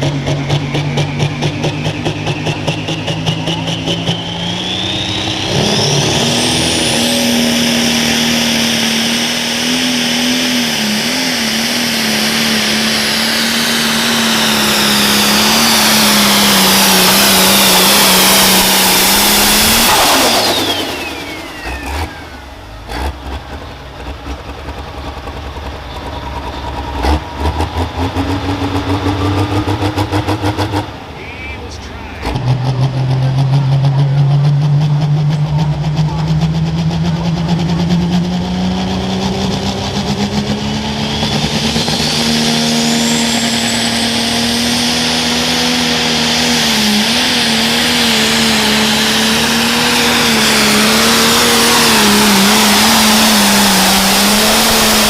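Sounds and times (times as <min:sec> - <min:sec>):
engine knocks: 0:00.0 - 0:04.7, 0:22.8 - 0:38.8
diesel engine running flat out: 0:00.0 - 0:55.0
high turbo whine: 0:00.0 - 0:55.0.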